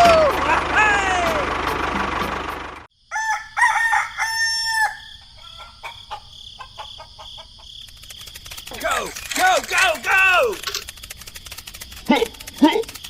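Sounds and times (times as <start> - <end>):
rooster crowing: 3.0 - 7.7
short clicks: 7.8 - 13.0.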